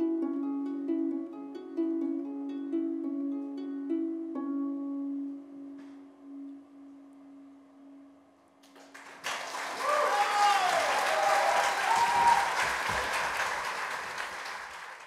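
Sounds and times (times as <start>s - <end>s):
applause: 8.6s - 15.0s.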